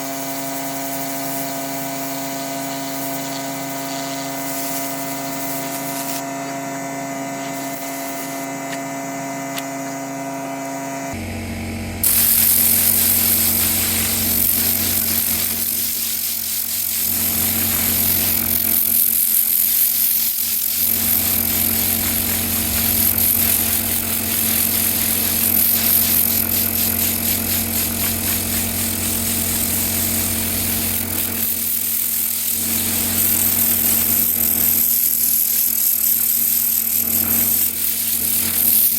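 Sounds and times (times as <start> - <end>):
loud hissing machine: 0.0 - 38.9
machine hum: 1.5 - 31.9.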